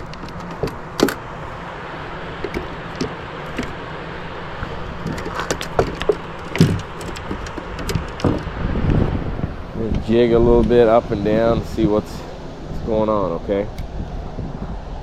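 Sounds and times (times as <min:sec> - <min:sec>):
fishing gear clicks and knocks: 0:00.0 - 0:01.3, 0:02.4 - 0:03.8, 0:04.6 - 0:08.6
steady rushing noise: 0:00.0 - 0:15.0.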